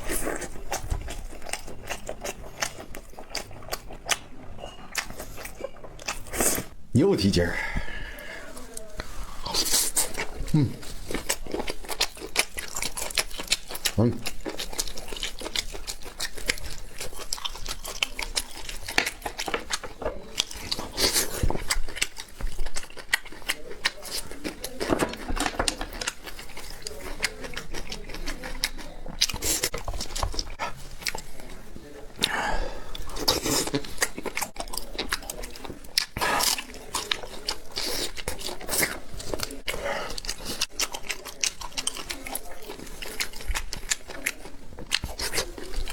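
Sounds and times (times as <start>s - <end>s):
person chewing food: 0.0s - 6.9s, 7.7s - 45.9s.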